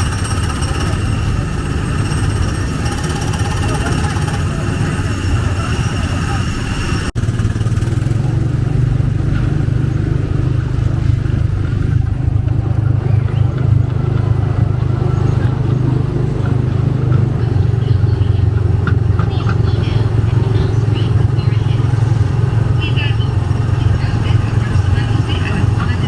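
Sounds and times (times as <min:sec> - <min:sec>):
small gasoline engine droning: 0:00.0 - 0:26.0.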